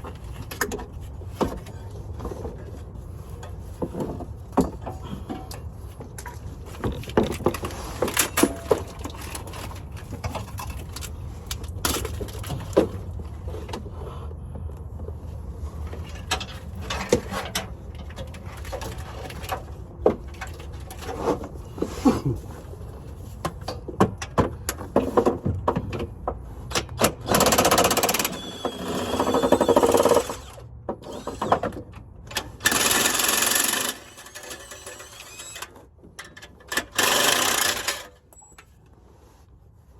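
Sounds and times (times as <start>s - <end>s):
fast mechanical rattle: 27.1s - 35.8s, 36.6s - 38.2s.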